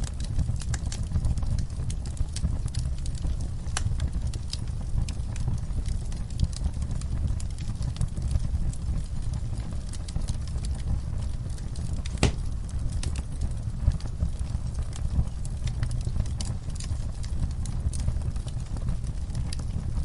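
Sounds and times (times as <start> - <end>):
wood fire crackling: 0.0 - 20.0
fire pop: 11.7 - 13.3.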